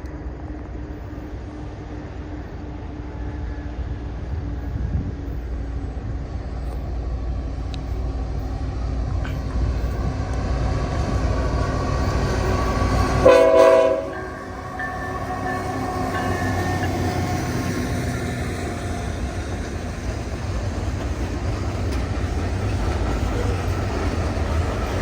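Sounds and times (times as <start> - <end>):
freight train rumbling: 0.0 - 25.0
locomotive air horn blast: 13.2 - 14.3.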